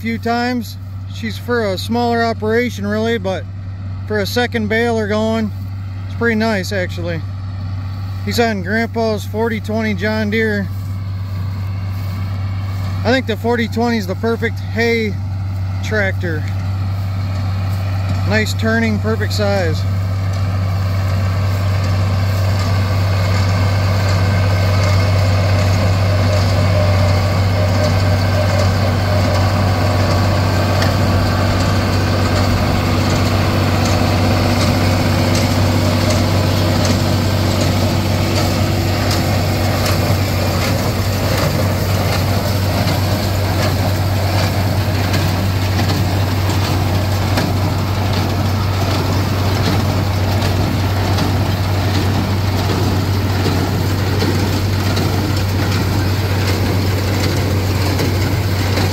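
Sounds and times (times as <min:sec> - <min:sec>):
hay baler clattering: 0:00.0 - 0:58.9
tractor engine running: 0:00.0 - 0:58.9.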